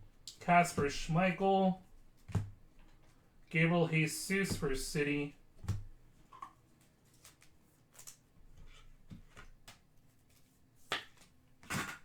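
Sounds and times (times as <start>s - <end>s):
cards clicking and swishing: 4.3s - 5.9s.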